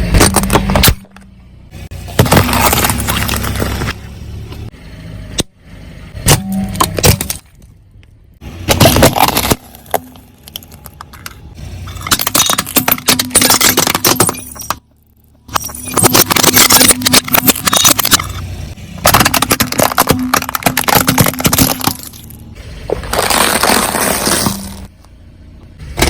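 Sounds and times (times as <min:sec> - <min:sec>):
objects crunching under car tyre: 0:02.0 - 0:04.1, 0:08.6 - 0:18.4, 0:19.0 - 0:25.2.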